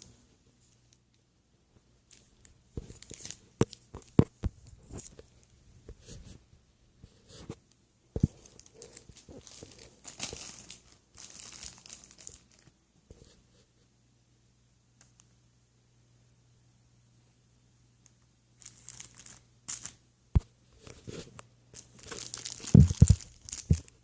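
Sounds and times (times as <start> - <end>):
plastic crinkling and rustling: 2.1 - 5.5, 8.2 - 12.8, 18.6 - 20.0, 20.8 - 24.0.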